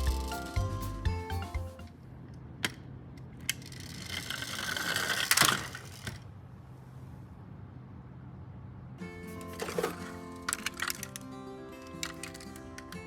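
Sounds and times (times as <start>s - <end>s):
ratcheting toy gear rattle: 0.0s - 0.6s, 3.4s - 6.2s, 9.4s - 12.9s.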